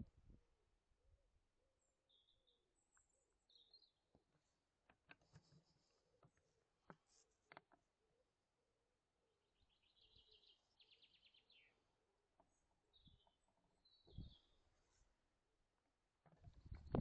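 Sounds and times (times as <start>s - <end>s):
songbird singing: 1.7s - 5.1s, 9.4s - 15.1s.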